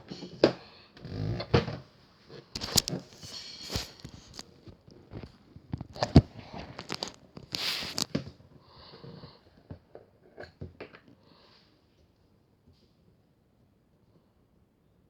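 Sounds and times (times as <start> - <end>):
short rustle: 2.6 - 4.8, 6.8 - 8.2.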